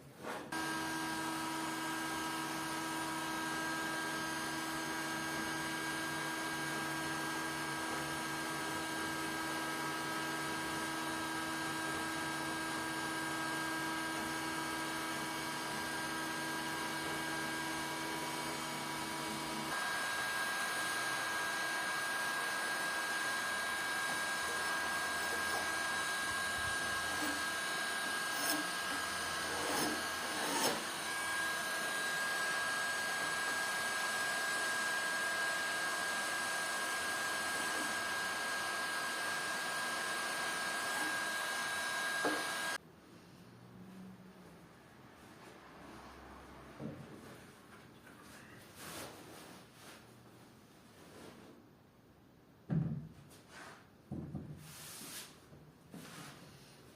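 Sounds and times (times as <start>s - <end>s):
power tool motor whining: 0.5s - 42.8s.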